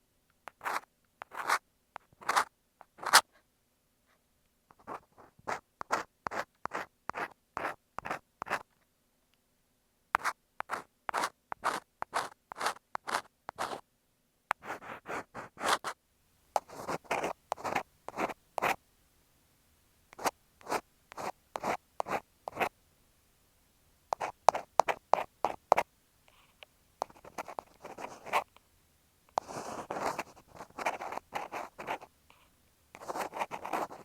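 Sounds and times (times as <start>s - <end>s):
ear pick scratching a microphone: 0.6s - 3.3s, 10.2s - 13.8s, 14.6s - 16.0s, 24.2s - 28.5s, 29.4s - 34.0s.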